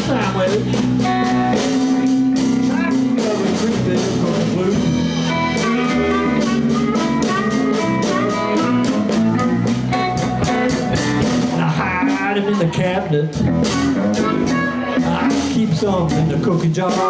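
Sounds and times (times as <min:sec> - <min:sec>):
bass: 0:00.0 - 0:17.0
drum kit beat: 0:00.0 - 0:17.0
electric guitar: 0:00.0 - 0:17.0
lead guitar bending phrases: 0:00.0 - 0:17.0.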